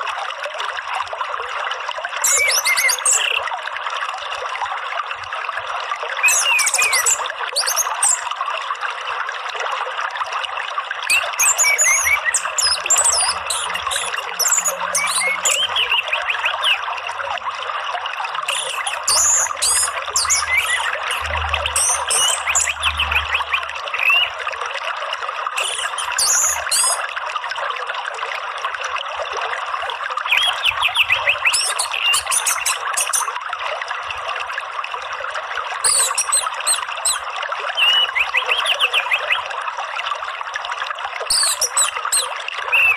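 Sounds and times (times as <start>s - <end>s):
running water: 0.0s - 42.9s
songbird chirps and whistles: 2.2s - 3.4s, 6.2s - 8.3s, 11.1s - 16.8s, 18.5s - 24.4s, 25.6s - 27.0s, 30.3s - 33.3s, 35.8s - 37.2s, 37.8s - 39.4s, 41.3s - 42.9s.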